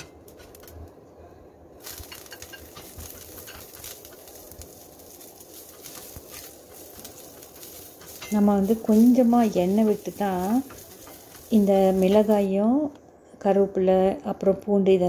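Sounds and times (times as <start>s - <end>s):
leaves and garlic sizzling in oil: 0.0s - 0.9s, 1.8s - 12.9s.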